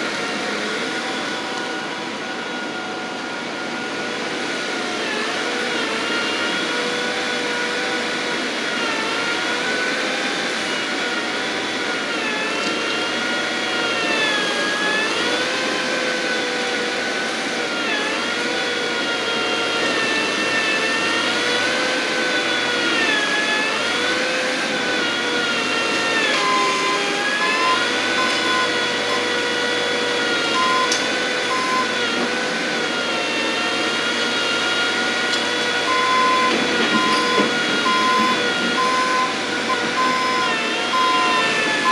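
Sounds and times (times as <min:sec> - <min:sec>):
loader engine working: 0:19.8 - 0:41.9
backup alarm beeping: 0:26.6 - 0:29.4, 0:30.5 - 0:32.0, 0:35.8 - 0:41.9.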